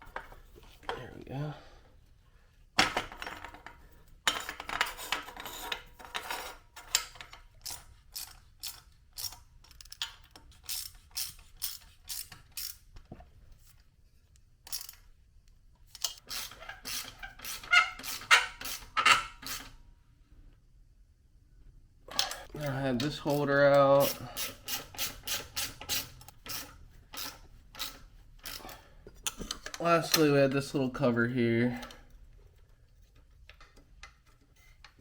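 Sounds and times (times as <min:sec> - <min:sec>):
hand ratchet clicking: 0:24.0 - 0:28.8.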